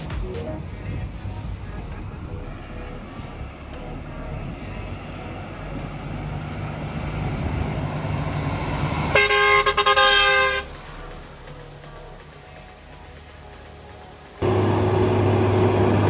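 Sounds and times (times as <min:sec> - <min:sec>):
heavy vehicle engine rumbling: 0:00.0 - 0:16.0
vehicle horn blaring: 0:09.1 - 0:10.9.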